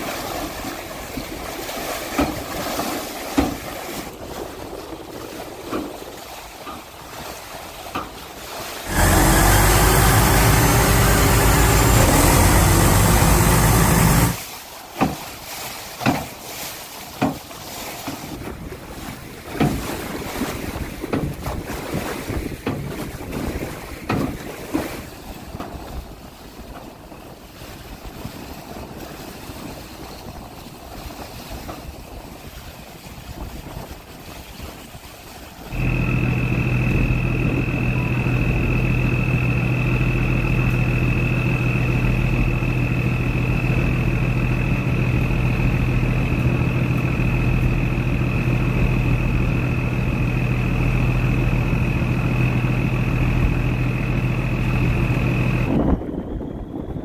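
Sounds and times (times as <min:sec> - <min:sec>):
boat engine droning: 0:00.0 - 0:14.6, 0:34.8 - 0:57.0
water noise: 0:00.0 - 0:57.0
wind: 0:00.0 - 0:57.0
thin high whine: 0:08.9 - 0:14.4, 0:35.7 - 0:56.5.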